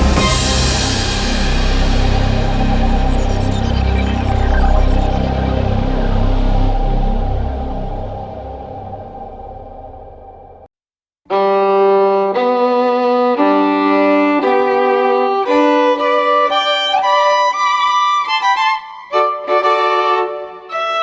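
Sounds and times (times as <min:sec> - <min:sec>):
background music: 0:00.0 - 0:10.2
violin melody of held notes: 0:11.3 - 0:21.0.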